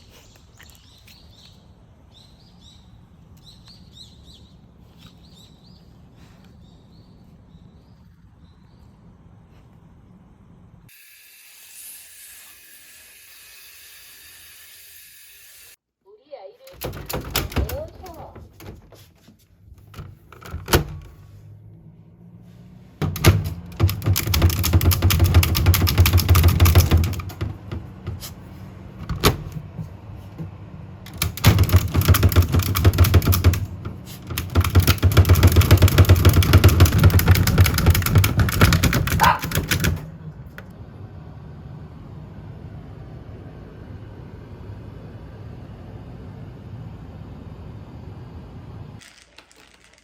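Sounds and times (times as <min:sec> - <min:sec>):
rapid sharp knocks: 0:23.0 - 0:27.9, 0:31.1 - 0:40.0.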